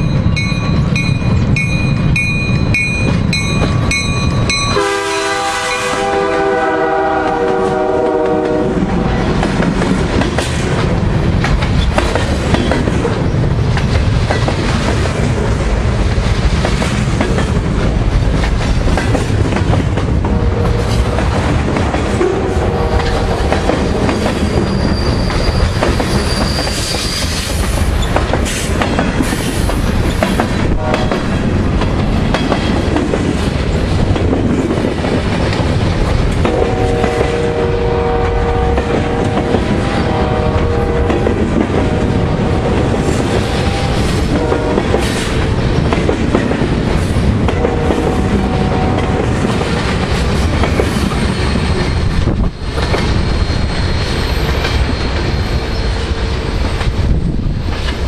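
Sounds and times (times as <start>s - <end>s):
freight train rumbling past: 0.0s - 58.0s
wheels clacking over rail joints: 8.3s - 37.4s.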